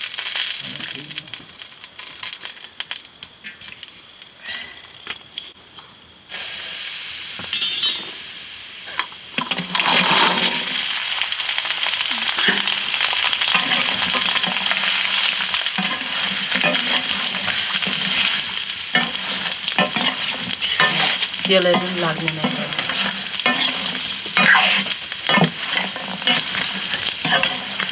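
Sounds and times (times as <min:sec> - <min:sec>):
food sizzling in hot oil: 0:00.0 - 0:03.2, 0:06.3 - 0:27.9
stirring in a pan: 0:09.4 - 0:27.9.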